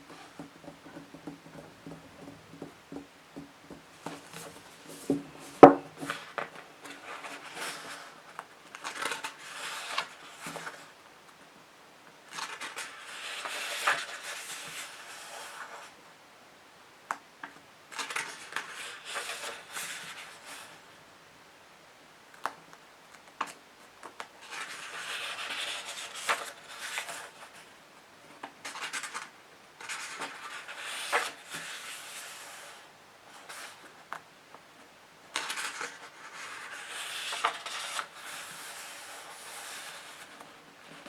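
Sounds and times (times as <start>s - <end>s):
fingernails tapping on books: 0.0s - 6.2s.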